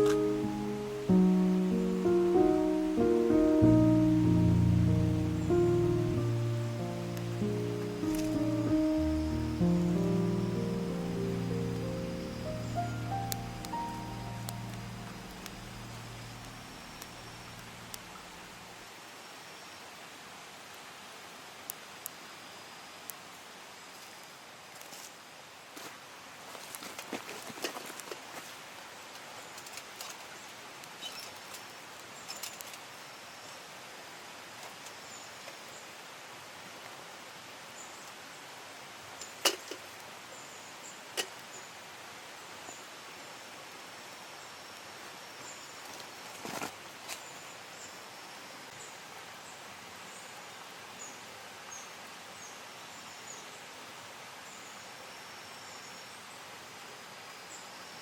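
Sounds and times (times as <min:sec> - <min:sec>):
mountain stream rushing: 0:00.0 - 0:33.1
light clicks and rustles: 0:25.8 - 0:32.9.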